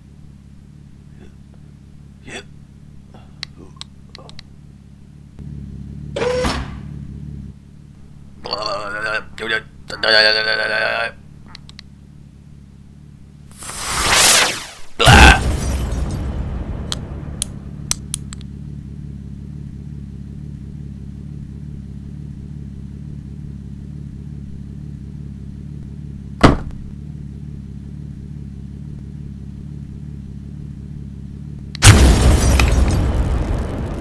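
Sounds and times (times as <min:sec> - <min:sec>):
car engine idling: 0:00.0 - 0:13.5, 0:15.5 - 0:34.0
light clicks: 0:03.4 - 0:04.5, 0:11.4 - 0:11.9
sudden loud hit: 0:31.8 - 0:34.0.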